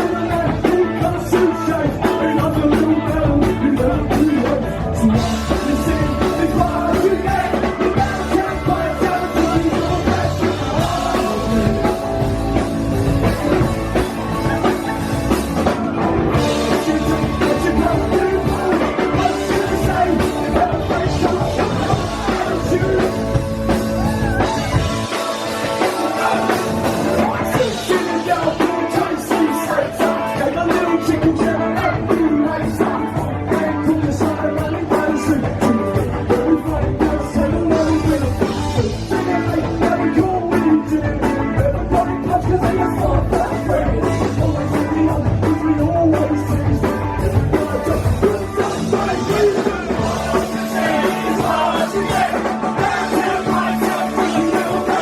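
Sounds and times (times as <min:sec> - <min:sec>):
live rock band playing: 0:00.0 - 0:55.0
person singing: 0:00.0 - 0:55.0.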